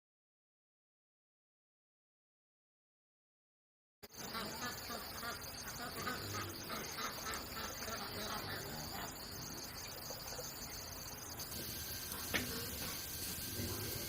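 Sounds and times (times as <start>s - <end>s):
insects chirping: 4.0s - 14.0s.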